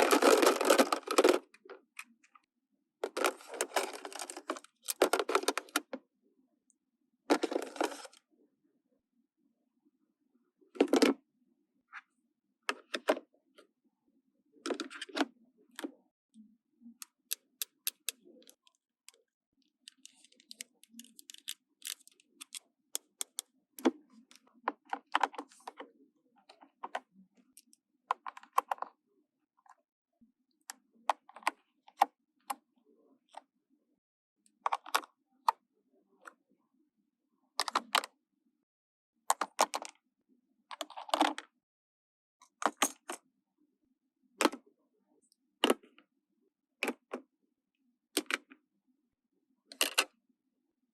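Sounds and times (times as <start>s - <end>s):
plastic toy pieces clicking: 19.9s - 23.4s.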